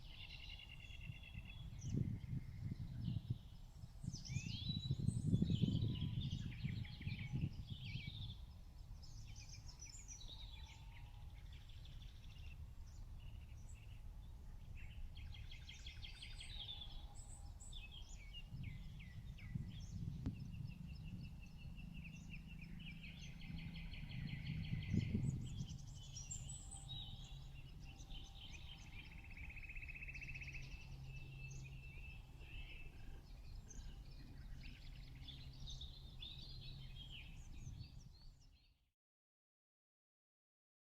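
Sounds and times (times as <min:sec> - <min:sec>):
birds singing and chirping: 0:00.0 - 0:38.8
steady low rumble: 0:11.3 - 0:38.2.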